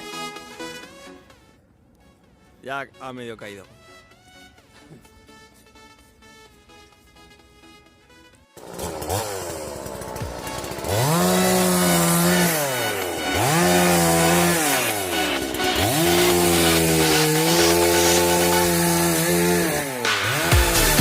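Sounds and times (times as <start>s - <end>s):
chainsaw revving: 8.6s - 21.0s.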